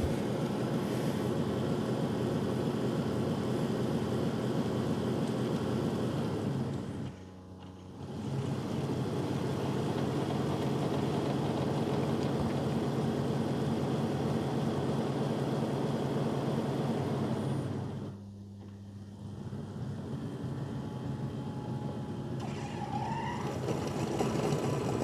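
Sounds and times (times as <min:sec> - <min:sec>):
robot vacuum base station humming: 0:00.0 - 0:01.5, 0:17.6 - 0:25.0.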